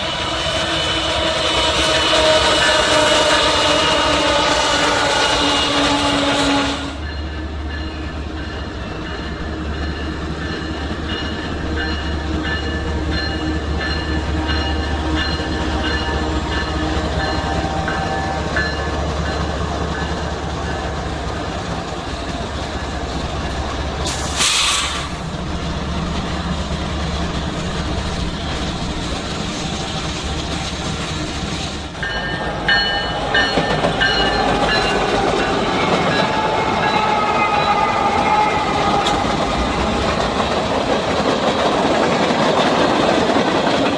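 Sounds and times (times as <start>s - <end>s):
diesel locomotive drone: 0.0s - 43.9s
metallic squeal: 32.2s - 39.4s.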